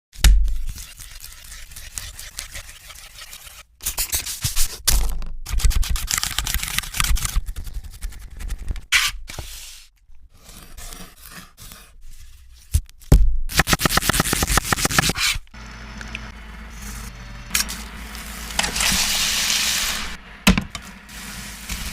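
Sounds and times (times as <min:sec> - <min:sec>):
cooking scraping: 0:00.6 - 0:03.7, 0:14.2 - 0:21.9.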